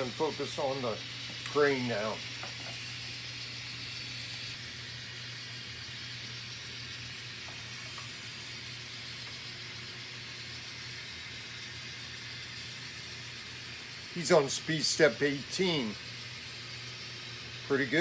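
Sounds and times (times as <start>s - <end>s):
even hiss: 0.0s - 4.5s, 13.2s - 18.0s
model locomotive diesel drone: 0.0s - 18.0s.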